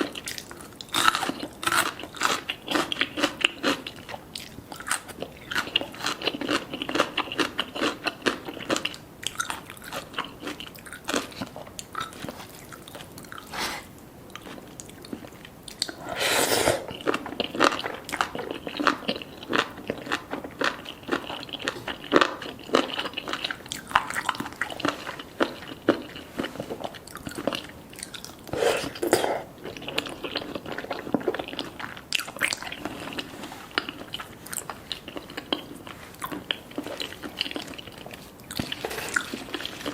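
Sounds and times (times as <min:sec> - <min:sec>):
crunching and chewing: 0:00.0 - 0:16.2, 0:16.8 - 0:39.9.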